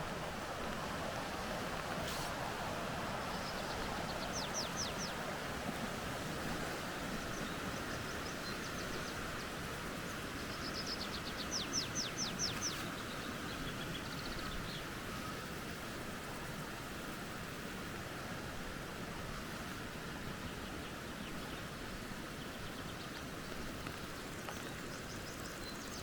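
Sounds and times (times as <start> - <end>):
creek water flowing: 0.0 - 26.0
songbird singing: 1.4 - 15.5, 20.4 - 26.0.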